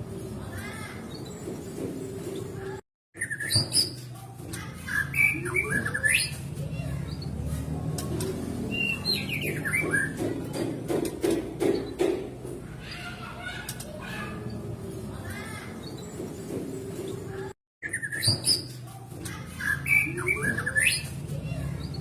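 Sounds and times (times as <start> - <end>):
low background murmur: 5.7 - 17.6.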